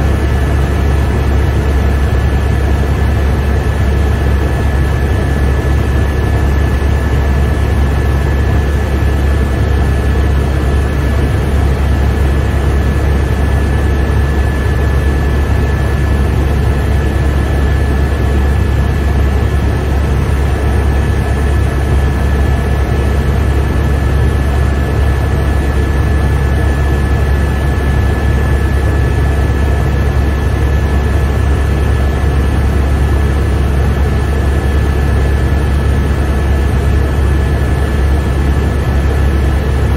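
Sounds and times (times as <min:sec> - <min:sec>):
constant high whine: 0:00.0 - 0:39.9
helicopter cabin drone: 0:00.0 - 0:39.9.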